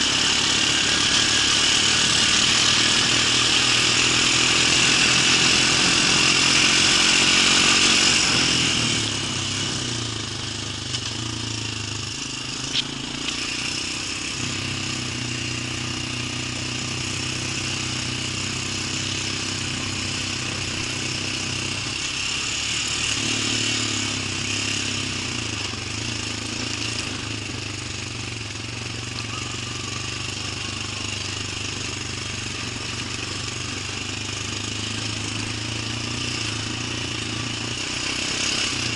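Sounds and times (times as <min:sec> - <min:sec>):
engine running steadily: 0:00.0 - 0:38.9
sharp click: 0:12.6 - 0:13.4.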